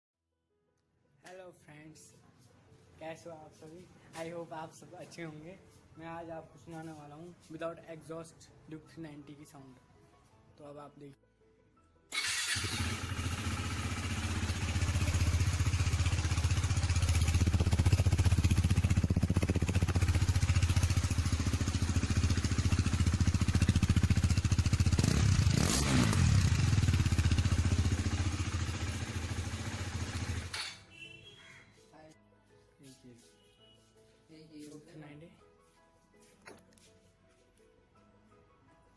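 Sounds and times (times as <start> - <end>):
loud single-cylinder engine idling: 13.0 - 25.2.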